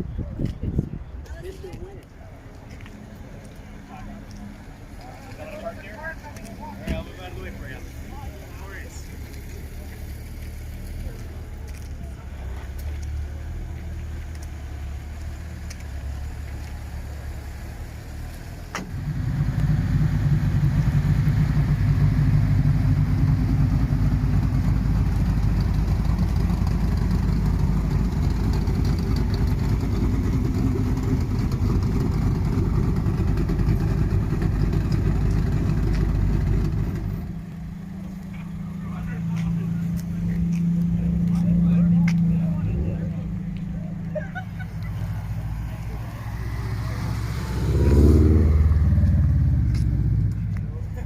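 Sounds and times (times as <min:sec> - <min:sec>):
car engine idling: 0:01.1 - 0:51.0
car engine starting: 0:02.4 - 0:51.0
low rumble: 0:21.8 - 0:51.0.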